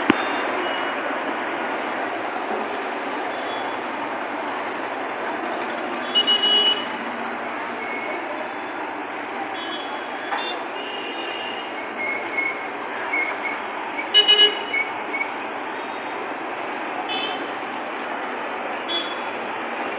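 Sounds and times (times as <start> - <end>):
bus running in traffic: 0.0 - 19.9
horn beeps: 2.5 - 16.1.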